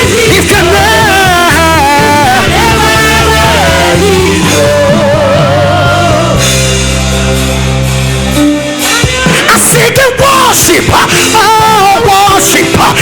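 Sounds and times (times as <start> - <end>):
person singing: 0.0 - 6.6
band playing worship music: 0.0 - 13.0.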